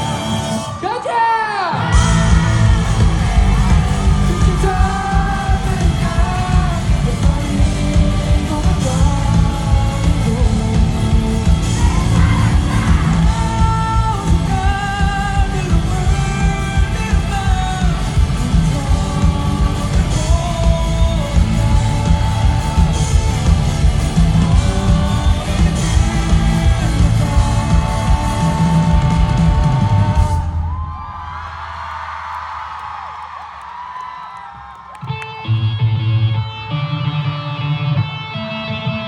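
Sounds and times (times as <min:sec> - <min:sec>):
person singing: 0:00.0 - 0:30.4
crowd noise: 0:00.0 - 0:39.0
live rock band playing: 0:01.7 - 0:30.4, 0:35.0 - 0:39.0.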